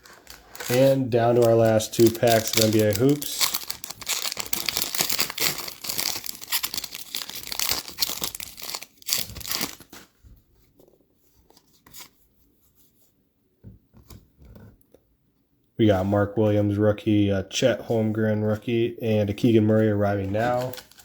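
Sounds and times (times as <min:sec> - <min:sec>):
card pack wrapper tearing: 0:00.0 - 0:10.0, 0:20.2 - 0:21.0
cards rustling and clicking: 0:00.0 - 0:10.1, 0:19.4 - 0:21.0.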